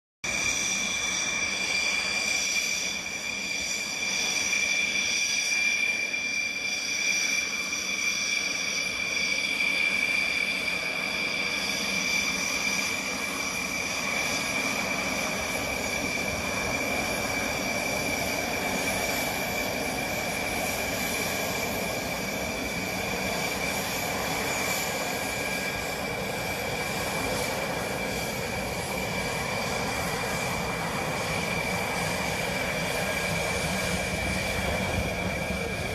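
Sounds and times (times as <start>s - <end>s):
jet engines whining: 0.2s - 35.9s.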